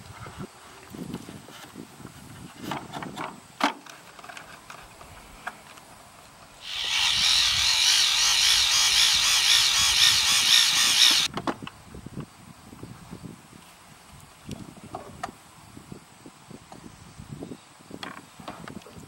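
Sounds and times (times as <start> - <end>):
electric fuel pump whining: 6.6 - 11.3.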